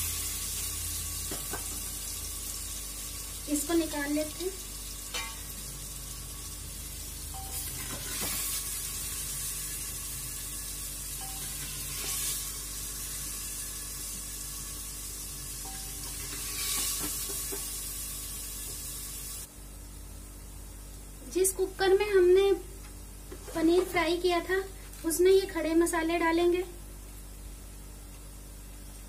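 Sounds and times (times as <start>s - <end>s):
cheese sizzling in hot oil: 0.0s - 21.2s.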